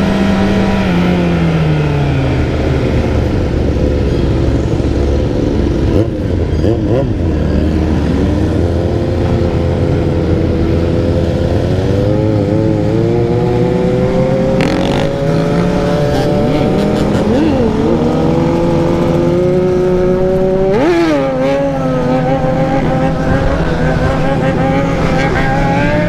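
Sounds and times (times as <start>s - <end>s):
dirt bike engine revving: 11.2s - 26.0s.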